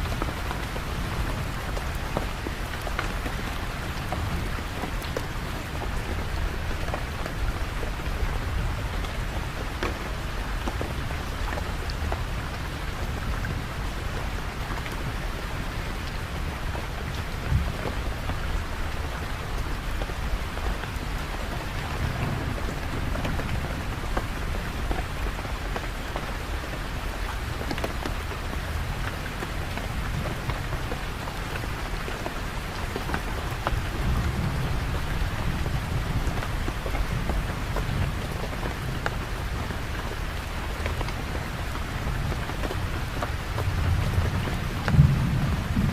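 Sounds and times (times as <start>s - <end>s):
steady rain falling: 0.0s - 45.9s
distant thunder rumbling: 21.8s - 24.8s, 43.1s - 45.9s.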